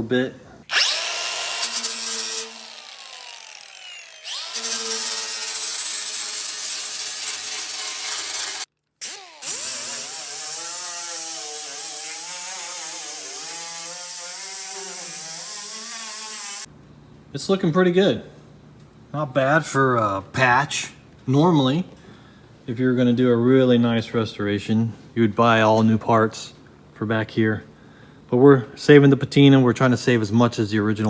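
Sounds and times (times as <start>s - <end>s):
grinder on sheet metal: 0.7s - 16.7s.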